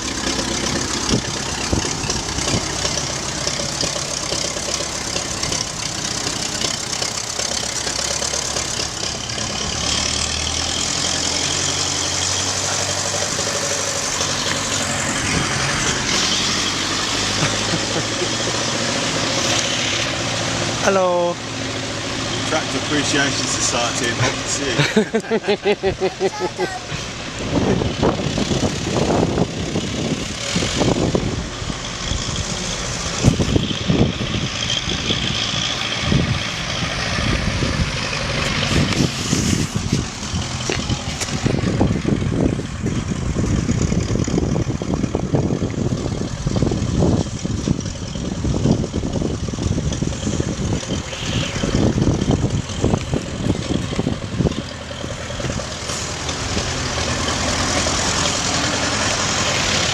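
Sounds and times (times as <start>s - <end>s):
knocks and rattles: 0.0s - 19.9s
tractor engine running: 0.0s - 59.9s.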